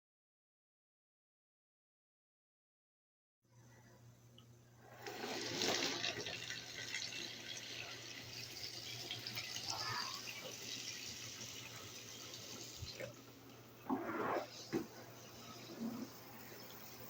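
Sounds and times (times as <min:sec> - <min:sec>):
water running: 0:04.8 - 0:17.0.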